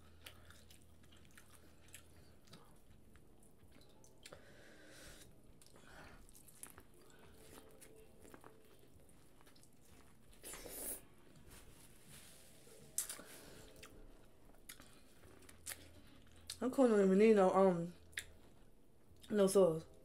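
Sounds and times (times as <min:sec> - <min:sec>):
chewing corn on the cob: 0:00.0 - 0:04.5, 0:05.4 - 0:10.6, 0:13.0 - 0:16.6.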